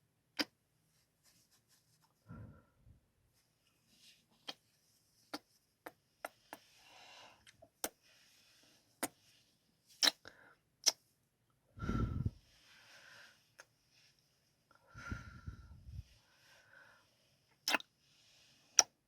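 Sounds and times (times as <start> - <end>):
soft breaths: 0.9 - 10.7, 11.7 - 19.0
lip smacks: 10.0 - 10.2, 17.6 - 17.9.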